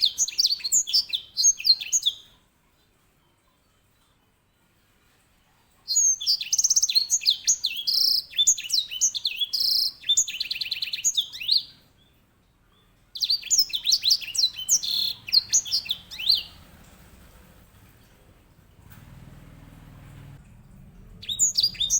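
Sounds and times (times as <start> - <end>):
finch singing: 0.0 - 2.4, 5.9 - 12.2, 12.8 - 17.7, 21.1 - 21.9.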